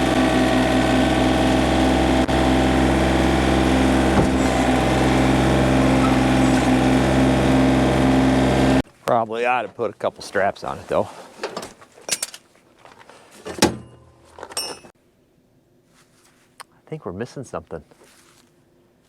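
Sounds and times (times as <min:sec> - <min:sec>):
tractor diesel engine running: 0:00.0 - 0:08.8.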